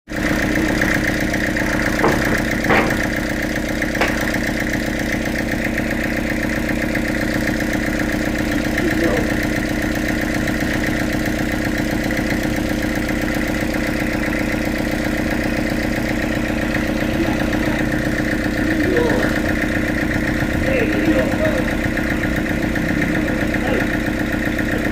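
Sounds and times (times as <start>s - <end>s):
sawmill machinery humming: 0.1s - 24.9s
short knocks: 1.6s - 3.3s, 3.9s - 4.5s.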